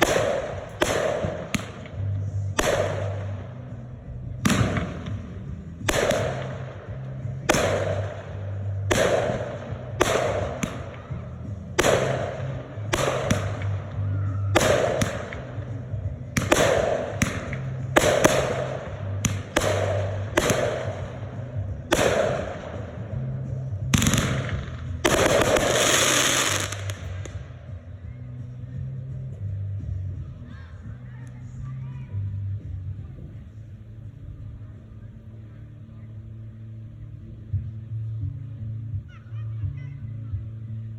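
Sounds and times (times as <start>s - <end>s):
fireworks bangs: 16.4s - 22.8s, 23.9s - 27.4s
fireworks crackling: 16.4s - 23.3s, 23.9s - 27.4s.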